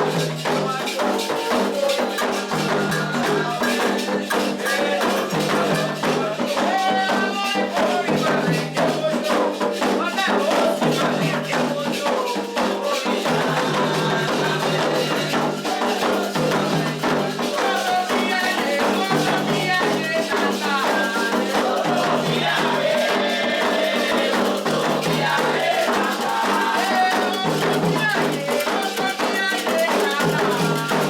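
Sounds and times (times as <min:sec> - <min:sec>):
hand drums beating: 0:00.0 - 0:31.0
rattle shaking: 0:00.0 - 0:31.0
voices singing: 0:00.0 - 0:31.0.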